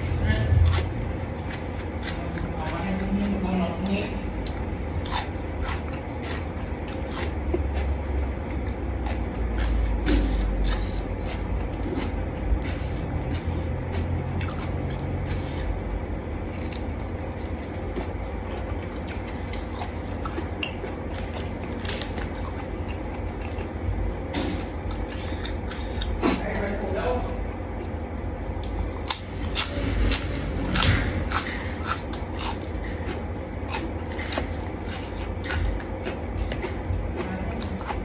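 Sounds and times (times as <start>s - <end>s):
person chewing food: 0.0s - 26.4s, 27.2s - 38.0s
steady low hum: 0.0s - 38.0s.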